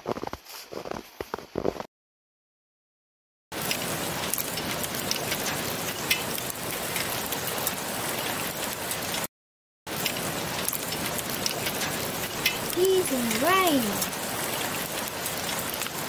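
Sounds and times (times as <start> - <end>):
rain hissing: 3.6 - 9.3, 9.9 - 16.0
drops ticking: 10.9 - 14.2.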